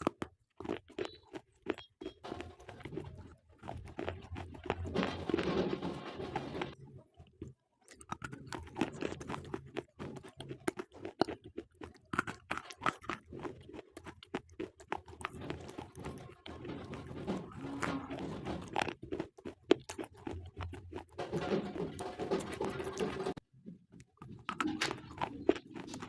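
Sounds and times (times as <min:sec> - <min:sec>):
pencil being chewed crunching: 0:00.0 - 0:05.5, 0:07.2 - 0:17.1, 0:18.1 - 0:21.2, 0:24.0 - 0:26.0.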